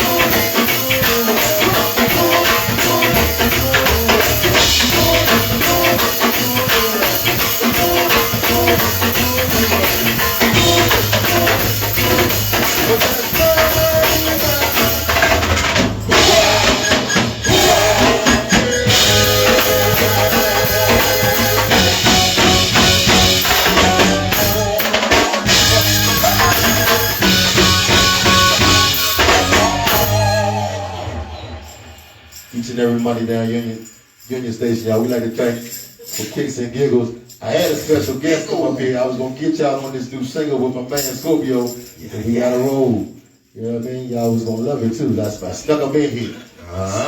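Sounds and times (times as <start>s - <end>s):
tambourine: 0.0s - 30.7s, 31.3s - 38.6s
bass line: 0.0s - 32.0s
drum kit groove: 0.0s - 33.1s.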